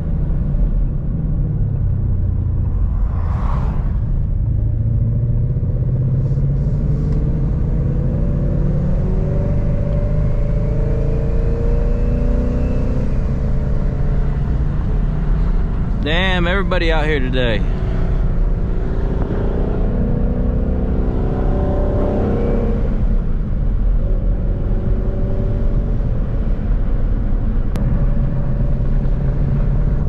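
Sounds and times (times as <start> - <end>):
car engine rumbling: 0.0 - 30.0.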